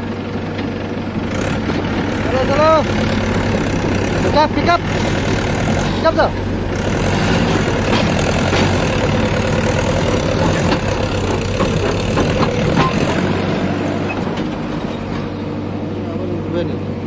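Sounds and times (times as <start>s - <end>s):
tractor diesel engine running: 0.0s - 17.0s
sharp knocks: 7.5s - 9.1s.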